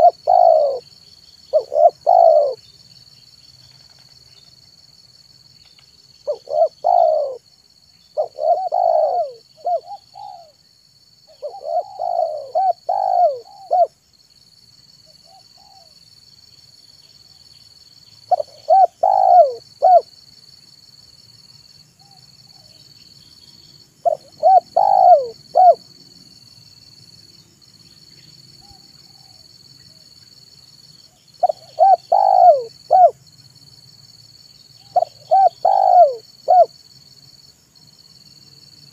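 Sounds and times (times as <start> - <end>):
dove cooing: 0.0 - 0.9, 1.5 - 2.6, 6.3 - 7.5, 8.2 - 10.6, 11.3 - 14.0, 18.3 - 20.1, 24.0 - 25.8, 31.4 - 33.2, 34.8 - 36.7.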